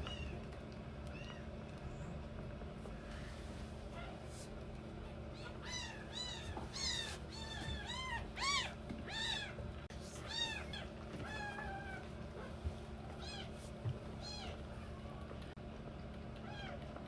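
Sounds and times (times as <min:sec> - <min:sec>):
kittens mewing: 0:05.3 - 0:15.3.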